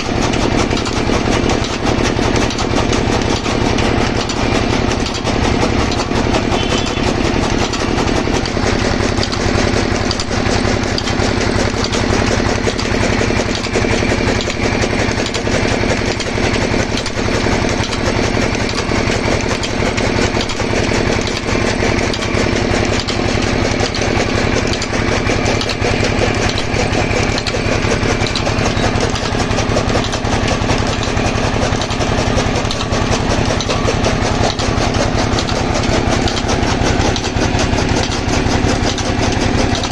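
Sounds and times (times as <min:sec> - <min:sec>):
pump engine running steadily: 0:00.0 - 0:39.9.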